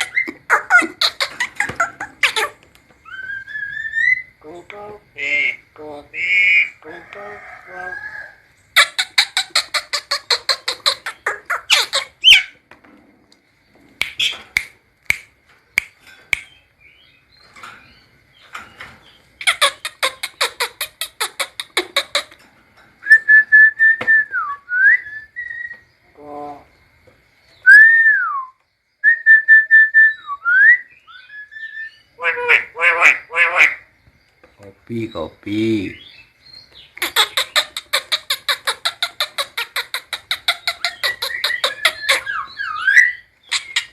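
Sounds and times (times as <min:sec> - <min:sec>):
bird harsh rattling chatter: 0:00.0 - 0:04.0, 0:08.8 - 0:12.6, 0:17.4 - 0:22.9, 0:36.8 - 0:42.6
bird whistles: 0:27.6 - 0:32.0, 0:40.8 - 0:43.9.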